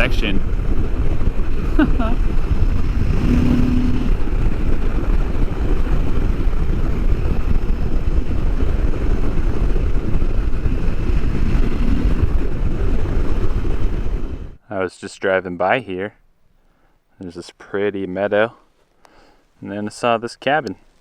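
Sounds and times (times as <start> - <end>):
motorcycle engine running: 0.0 - 14.2
wind rush on microphone: 0.0 - 14.6.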